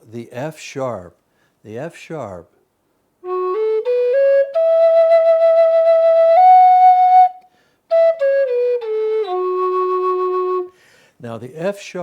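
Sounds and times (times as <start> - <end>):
wooden flute playing a scale: 3.2 - 10.7
player breathing: 7.5 - 7.8, 10.7 - 11.2.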